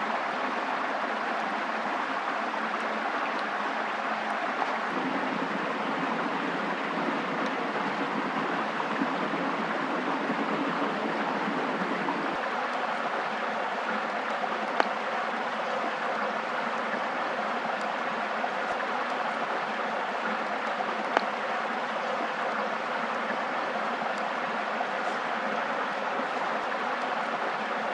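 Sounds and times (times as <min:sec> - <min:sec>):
rushing water: 0:00.0 - 0:27.9.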